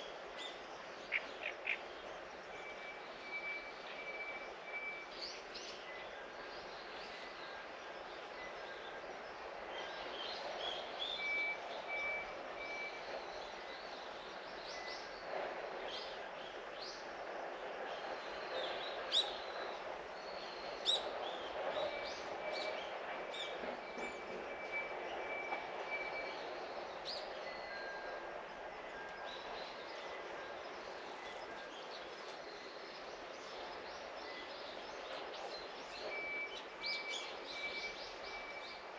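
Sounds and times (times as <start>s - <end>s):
background hiss of distant noise: 0.0s - 38.9s.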